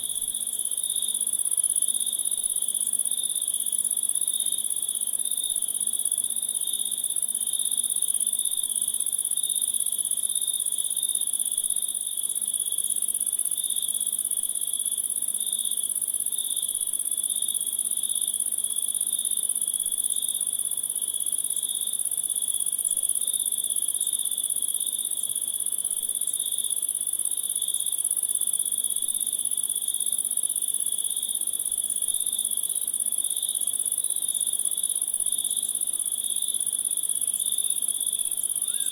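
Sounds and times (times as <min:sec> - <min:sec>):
insects chirring: 0:36.9 - 0:38.9.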